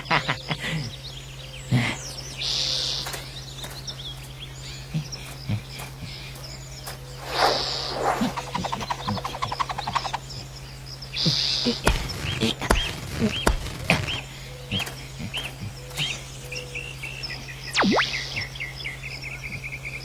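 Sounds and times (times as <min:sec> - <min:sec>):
short chirping whistles: 0:17.7 - 0:18.6.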